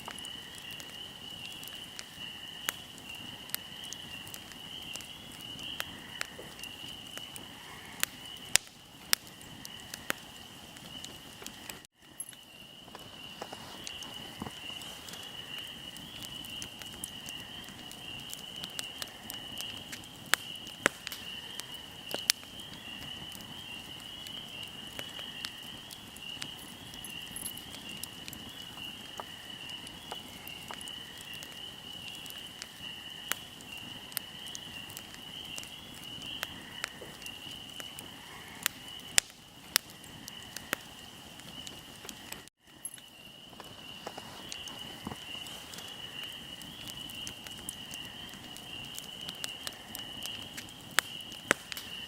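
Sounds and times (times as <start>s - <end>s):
fire crackling and popping: 0.0s - 52.0s
insects chirring: 0.0s - 52.0s.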